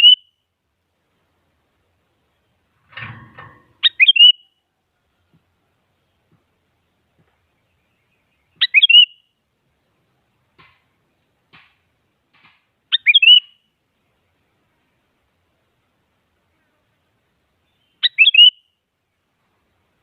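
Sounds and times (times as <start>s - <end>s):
bird singing short phrases: 0.0s - 0.4s, 3.8s - 4.8s, 7.5s - 9.4s, 12.9s - 13.8s, 17.6s - 18.8s.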